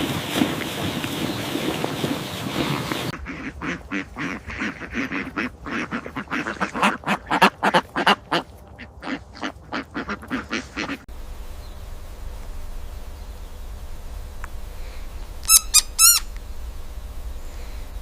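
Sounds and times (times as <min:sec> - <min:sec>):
fowl calling: 0:02.2 - 0:11.1, 0:15.4 - 0:16.4.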